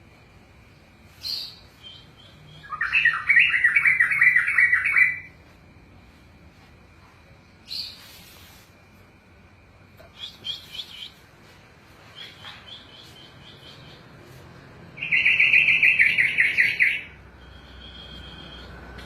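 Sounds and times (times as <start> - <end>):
bird singing warbling notes: 1.3 - 5.3, 15.0 - 18.9.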